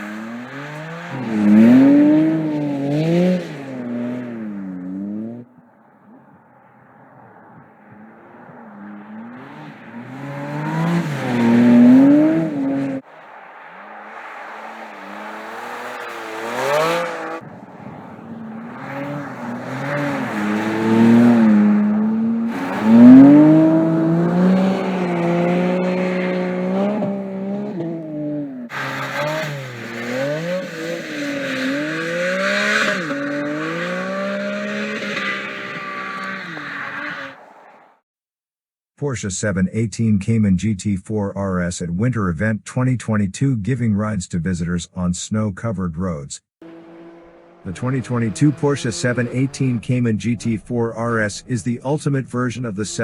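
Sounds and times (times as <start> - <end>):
sports car engine revving: 0.0 - 37.6, 46.6 - 50.6.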